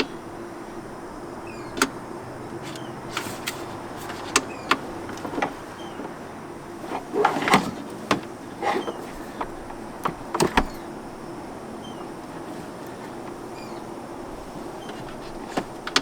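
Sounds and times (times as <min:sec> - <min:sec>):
heater blower motor humming: 0:00.0 - 0:16.0
sharp clicks and knocks: 0:01.7 - 0:06.2, 0:14.8 - 0:16.0.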